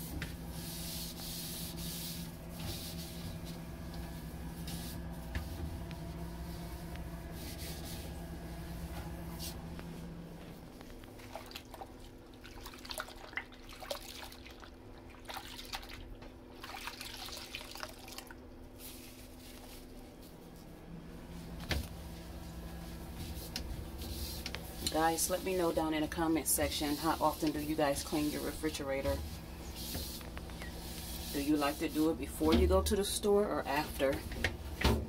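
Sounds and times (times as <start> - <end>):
steady low hum: 0.0 - 12.8, 18.4 - 35.0
wet cloth wiping: 0.0 - 14.3, 18.8 - 20.7, 21.3 - 32.5.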